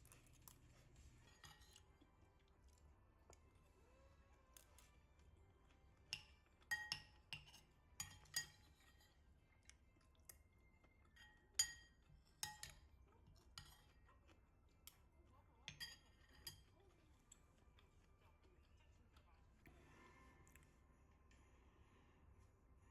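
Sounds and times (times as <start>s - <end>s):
dishes and tableware clinking: 1.2s - 1.9s, 6.1s - 9.2s, 10.3s - 14.0s, 15.7s - 16.8s.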